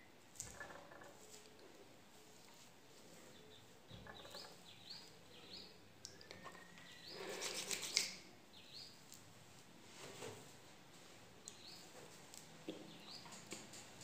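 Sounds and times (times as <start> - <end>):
bird chirping: 3.1 - 9.0, 11.4 - 12.0, 12.7 - 13.6.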